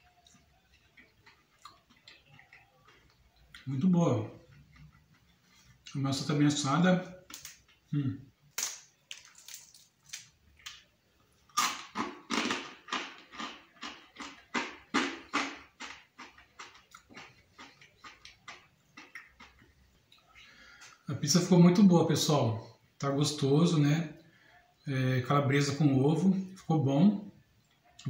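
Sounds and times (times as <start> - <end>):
person chewing crunchy pizza: 0.1 - 3.7, 11.5 - 19.7.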